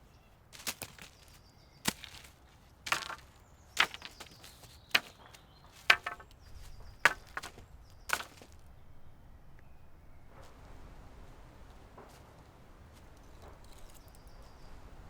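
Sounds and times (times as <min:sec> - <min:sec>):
axe chopping wood: 0:01.9 - 0:02.3, 0:02.9 - 0:06.3, 0:07.1 - 0:08.6.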